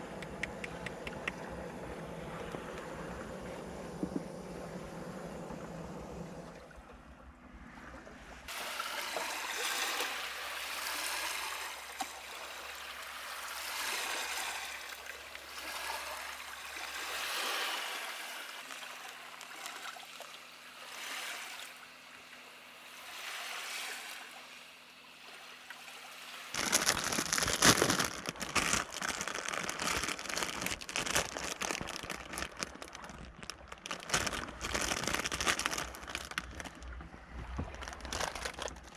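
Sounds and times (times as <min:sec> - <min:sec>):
small waves lapping on shore: 0:07.6 - 0:38.9
dense crackling and rustling: 0:26.6 - 0:38.9.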